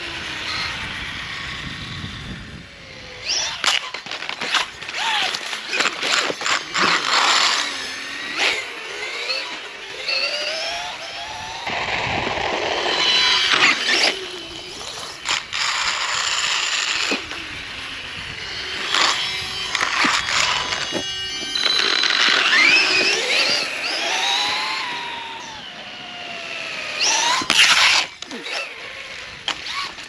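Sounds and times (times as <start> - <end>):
electric motor whining: 0.0 - 30.0.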